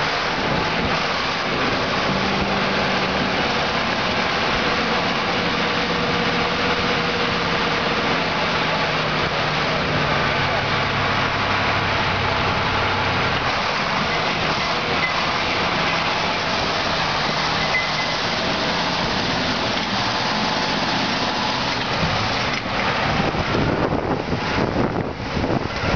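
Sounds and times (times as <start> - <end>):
loud rushing noise: 0.0 - 25.9
truck diesel engine under load: 0.0 - 25.9
wind buffeting microphone: 21.8 - 25.9.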